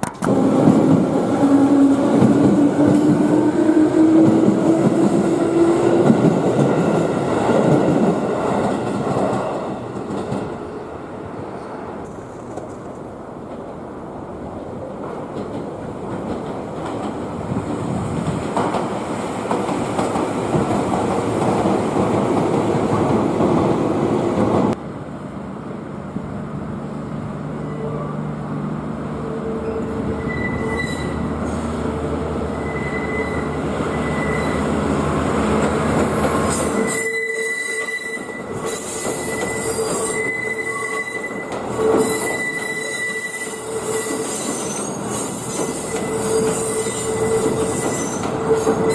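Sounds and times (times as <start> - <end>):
diesel train rumbling: 0.0 - 48.9
high-pitched wheel squeal: 29.4 - 31.3, 32.5 - 34.7, 36.5 - 48.9.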